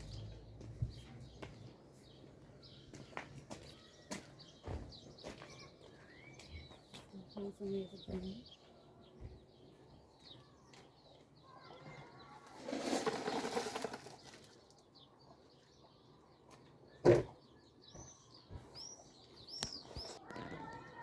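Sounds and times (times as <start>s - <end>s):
birds chirping: 0.0s - 21.0s
rustling noise: 12.5s - 14.5s.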